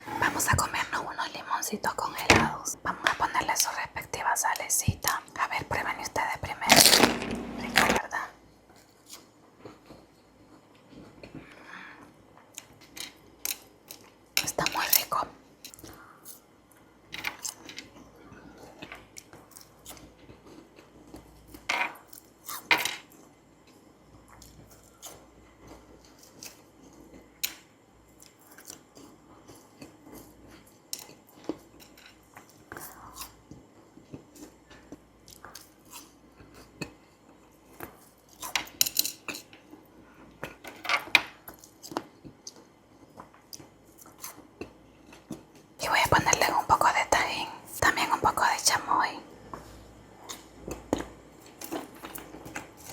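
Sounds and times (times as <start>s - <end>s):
frozen lemon crunching: 6.6s - 8.0s.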